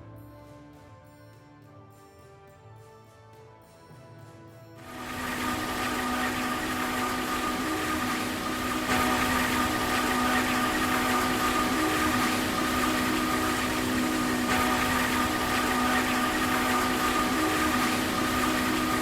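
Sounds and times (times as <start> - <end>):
constant whine: 4.9 - 19.0
large engine with rushing noise: 4.9 - 19.0.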